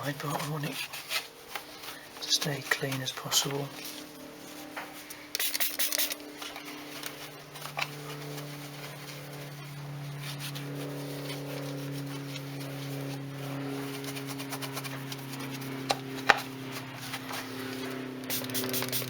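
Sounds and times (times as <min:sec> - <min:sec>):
steady low hum: 0:00.0 - 0:19.0
spray bottle hissing: 0:05.3 - 0:06.2, 0:18.3 - 0:19.0.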